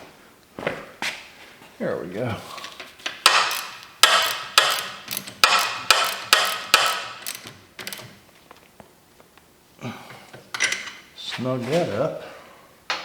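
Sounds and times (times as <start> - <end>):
socket ratchet clicking: 3.3 - 8.2.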